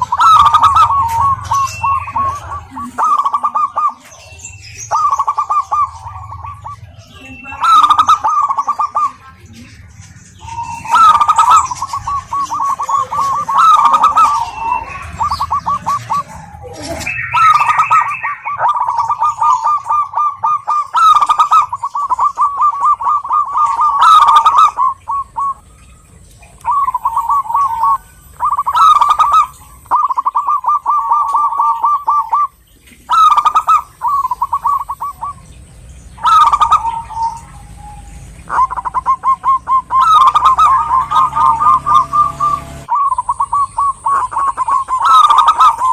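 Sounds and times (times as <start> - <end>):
dove cooing: 0.0 - 45.9.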